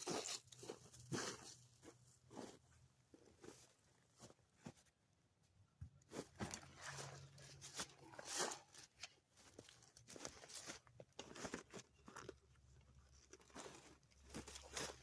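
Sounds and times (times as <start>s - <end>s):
crunching footsteps: 13.1s - 15.0s.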